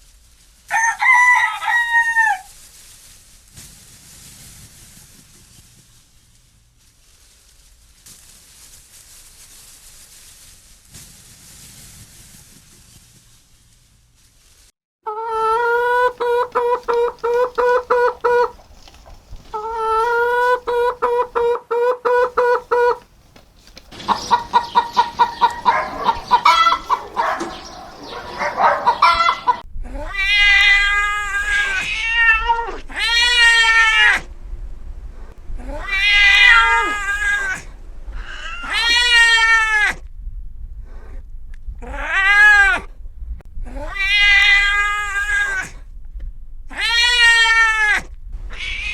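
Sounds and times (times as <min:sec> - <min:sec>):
rapid high-pitched calls: 0:23.9 - 0:29.6
cat meowing: 0:24.2 - 0:34.2, 0:35.7 - 0:40.0, 0:43.8 - 0:45.7, 0:46.7 - 0:48.9.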